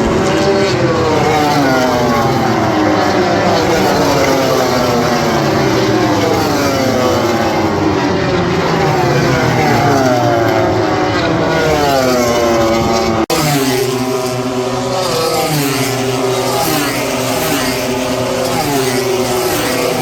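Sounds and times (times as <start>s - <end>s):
racing motorcycle engines revving: 0.0s - 20.0s.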